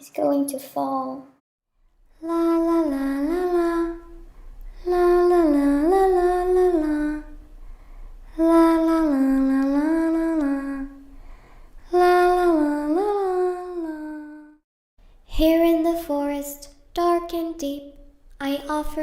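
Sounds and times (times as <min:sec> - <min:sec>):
girl humming a slow tune: 0:02.1 - 0:07.6, 0:08.3 - 0:11.1, 0:11.8 - 0:14.6.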